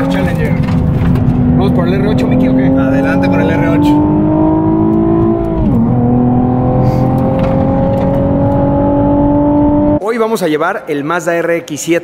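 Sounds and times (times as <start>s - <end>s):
car engine accelerating hard: 0.0s - 10.0s
road and wind noise: 0.0s - 10.0s.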